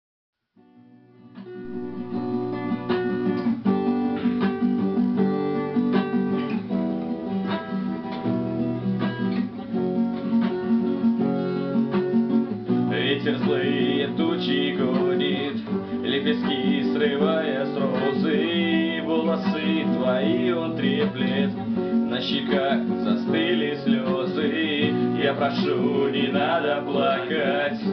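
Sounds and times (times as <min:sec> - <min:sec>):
acoustic guitar strumming chords: 0:00.6 - 0:27.9
higher wavering melody: 0:01.6 - 0:02.9.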